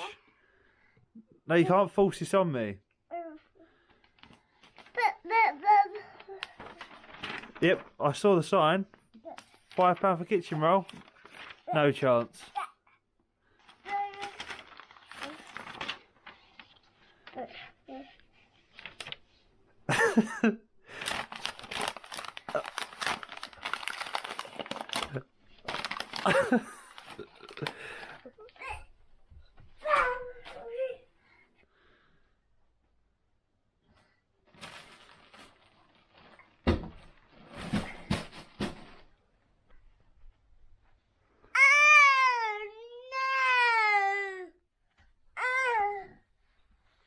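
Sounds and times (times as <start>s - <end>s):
paper crinkling and rustling: 3.8s - 12.6s, 13.5s - 19.5s, 20.9s - 28.8s, 34.4s - 39.1s
child vocalizing: 5.0s - 6.6s, 41.6s - 44.6s, 45.4s - 46.2s.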